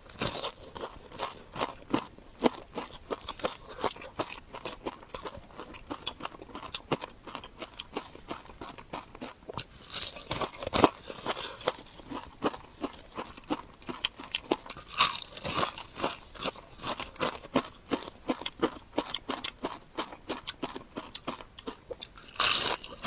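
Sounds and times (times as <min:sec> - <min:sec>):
crunching and chewing crisp food: 0:00.0 - 0:23.0.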